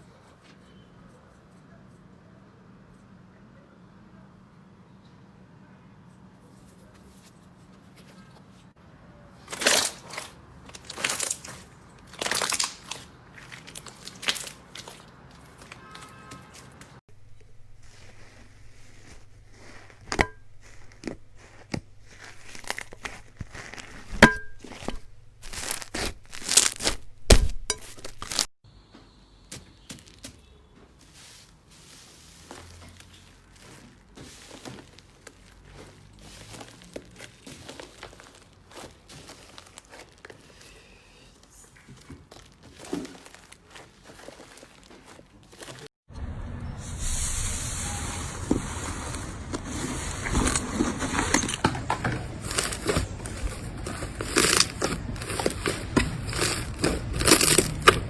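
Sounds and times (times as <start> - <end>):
slime squeezed crackling and popping: 9.5 - 16.6, 52.4 - 58.0.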